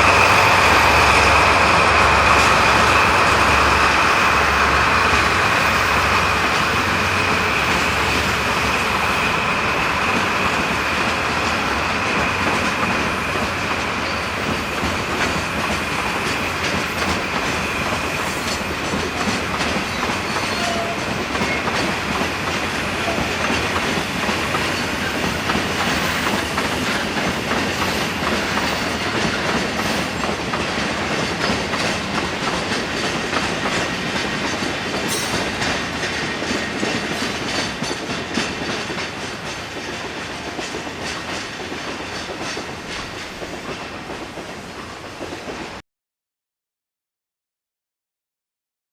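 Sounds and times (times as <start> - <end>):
train wheels clacking over rail joints: 0.0 - 45.8.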